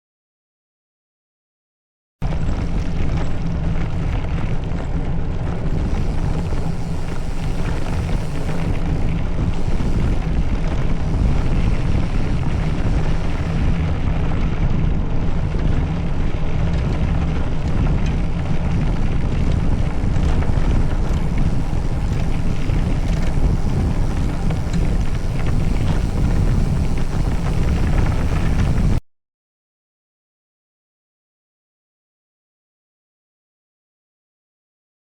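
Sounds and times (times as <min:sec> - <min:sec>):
wind buffeting microphone: 0:02.2 - 0:29.0.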